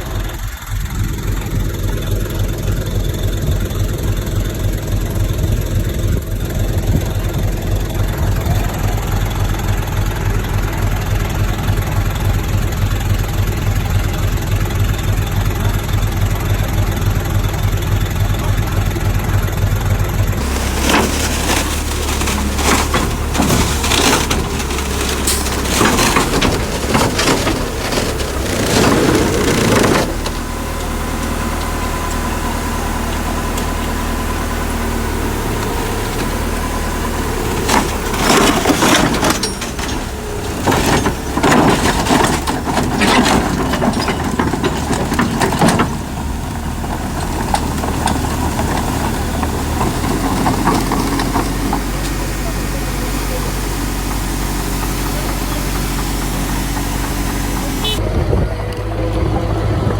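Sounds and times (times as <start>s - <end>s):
diesel engine running: 0.0s - 59.9s
soil and debris crunching: 20.2s - 59.9s.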